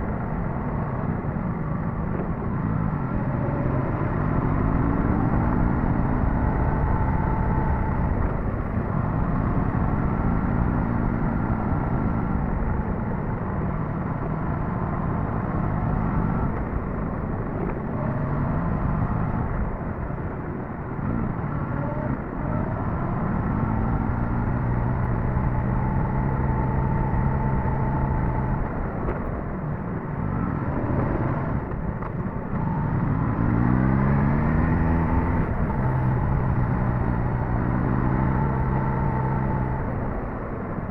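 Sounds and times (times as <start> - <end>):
motorcycle engine revving: 21.1 - 28.8, 32.5 - 40.9.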